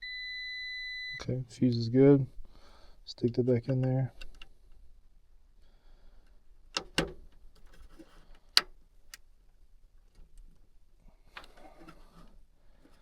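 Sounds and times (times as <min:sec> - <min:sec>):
hands clicking and knocking on controls: 0:06.7 - 0:07.4.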